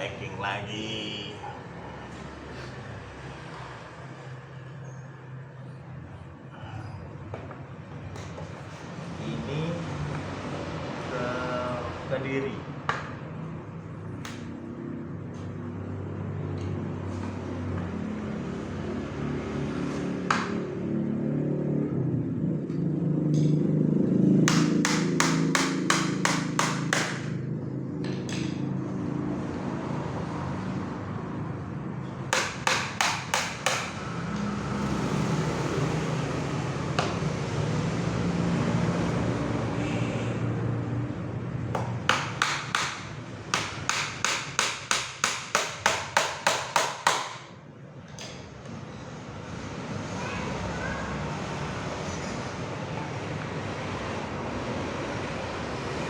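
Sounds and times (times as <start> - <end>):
hammer driving nails into wood: 24.5 - 27.3, 32.4 - 34.0, 41.8 - 47.5.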